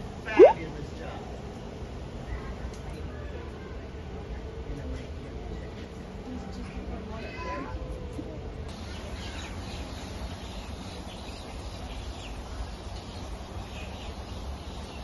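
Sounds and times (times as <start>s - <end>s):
steady outdoor background noise: 0.0s - 15.0s
faint bird chirps: 0.3s - 0.6s.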